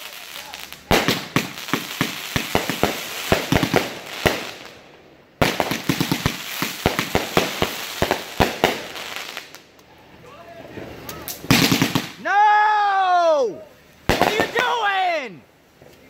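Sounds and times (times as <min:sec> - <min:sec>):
fireworks bangs: 0:00.0 - 0:09.6, 0:10.6 - 0:12.3, 0:14.1 - 0:15.0
fireworks crackling: 0:00.0 - 0:12.5, 0:13.8 - 0:16.0.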